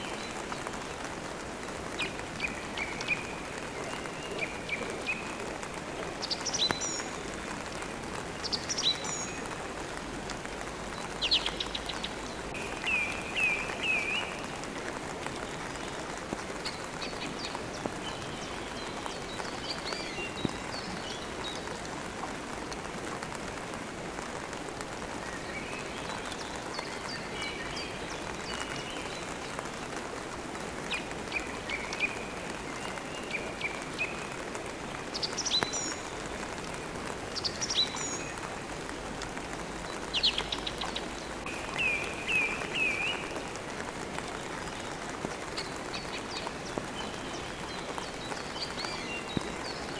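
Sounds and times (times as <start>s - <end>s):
steady rain falling: 0.0s - 49.9s
birds chirping: 39.8s - 43.6s.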